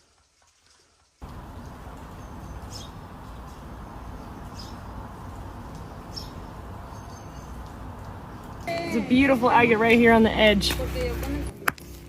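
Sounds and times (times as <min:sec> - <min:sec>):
small bird chirping: 0:02.0 - 0:05.0, 0:05.6 - 0:08.6.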